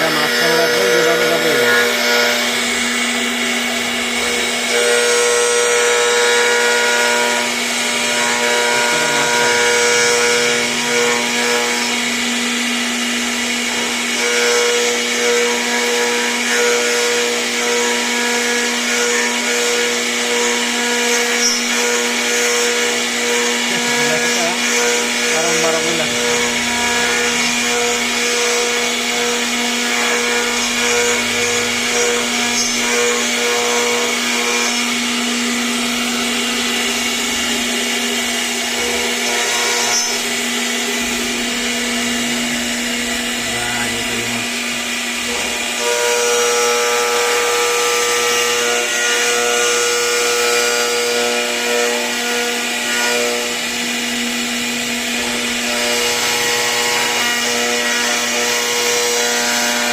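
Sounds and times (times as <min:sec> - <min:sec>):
router bit cutting wood: 0:00.0 - 0:59.9
router spindle tone: 0:00.0 - 0:59.9.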